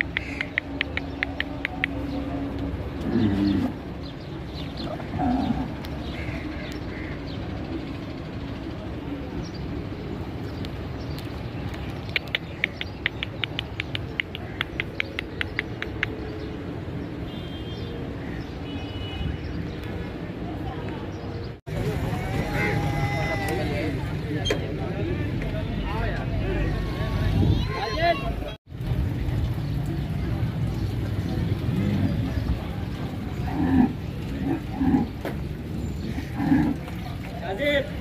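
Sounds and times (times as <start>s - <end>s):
birds chirping in quick runs: 10.4s - 20.1s.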